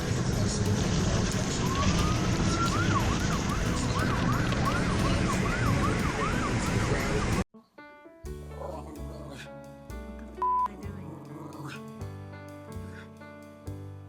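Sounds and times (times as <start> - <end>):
heavy low rumble: 0.0 - 7.5
emergency siren: 0.9 - 7.4.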